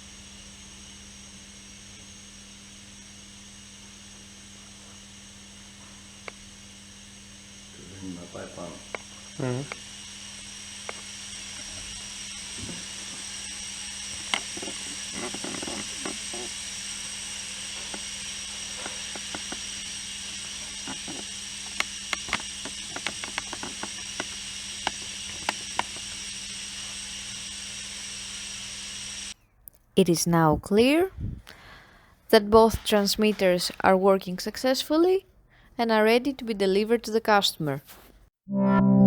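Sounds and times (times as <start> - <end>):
compressed air hum and whine: 0.0 - 29.4, 30.0 - 33.5
indistinct voices: 9.4 - 9.8, 30.0 - 31.6, 32.3 - 35.2.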